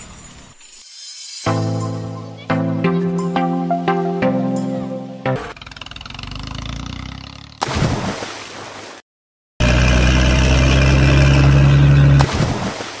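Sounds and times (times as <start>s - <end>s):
loud engine-like drone: 9.6s - 12.3s.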